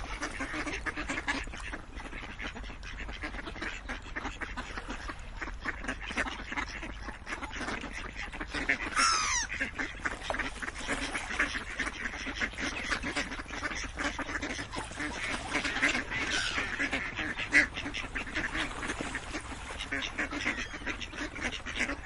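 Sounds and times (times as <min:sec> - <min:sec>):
ducks quacking: 0:00.0 - 0:22.0.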